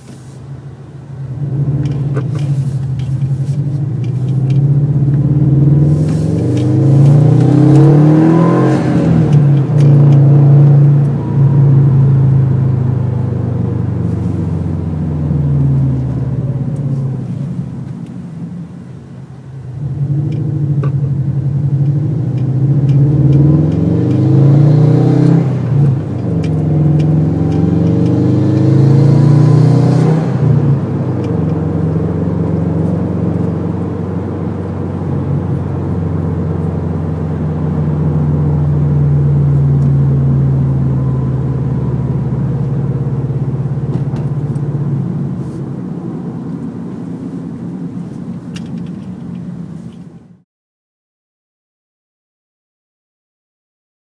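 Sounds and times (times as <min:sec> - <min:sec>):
car engine accelerating hard: 0:01.2 - 0:18.0, 0:18.8 - 0:50.0.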